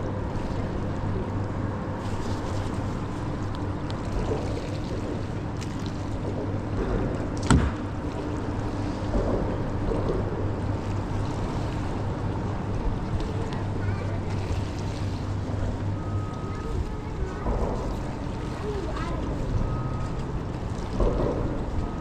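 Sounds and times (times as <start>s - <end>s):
boat motor humming: 0.0s - 22.0s
water noise: 0.0s - 22.0s
sharp knock: 7.4s - 7.8s.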